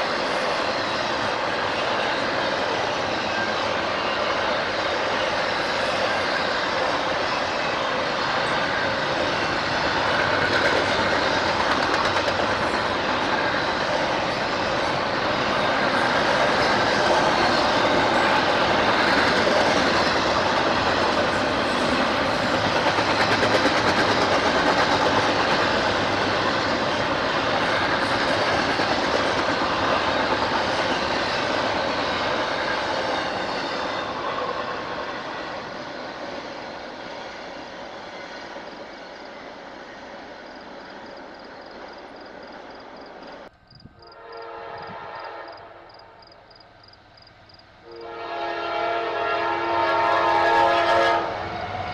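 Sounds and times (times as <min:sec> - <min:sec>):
train wheels clattering: 0:00.0 - 0:37.6
train horn chord: 0:43.9 - 0:46.2, 0:47.8 - 0:51.6.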